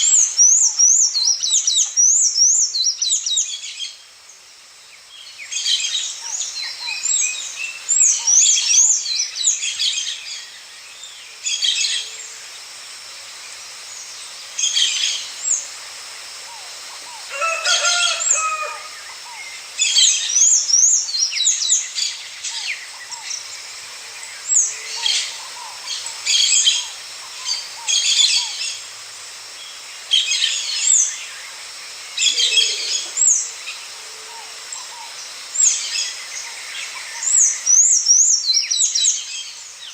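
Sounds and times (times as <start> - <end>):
songbirds chirping and trilling: 13.4 - 39.9.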